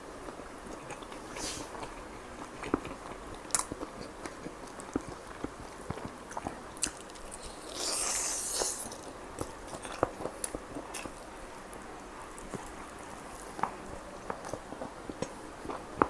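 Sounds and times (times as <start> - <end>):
person chewing food: 0.2 - 16.0
crunchy bite: 6.8 - 9.1.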